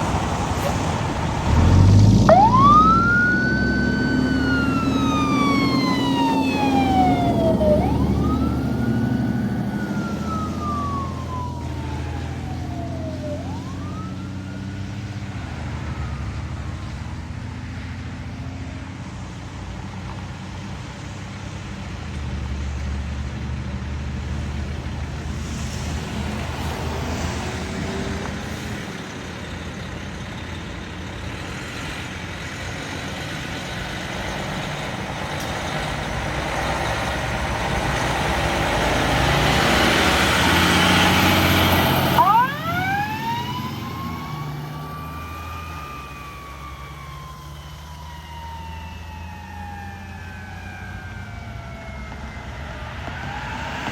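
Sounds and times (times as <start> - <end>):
diesel engine rumble: 0.0 - 53.9
siren wailing: 0.8 - 16.8, 38.2 - 53.9.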